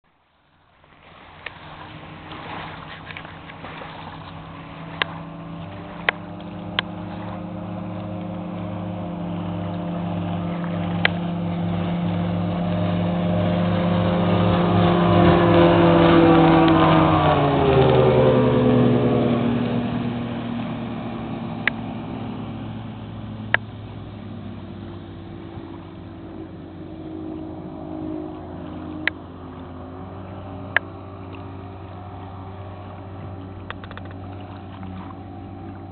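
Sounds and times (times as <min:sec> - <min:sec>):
outboard boat engine passing: 0:00.1 - 0:35.9.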